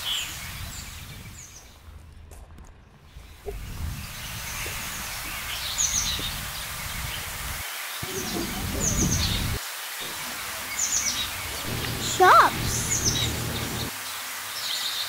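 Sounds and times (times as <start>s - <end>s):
low outdoor rumble: 8.0s - 10.5s, 11.1s - 13.9s
small bird chirping: 10.6s - 13.9s.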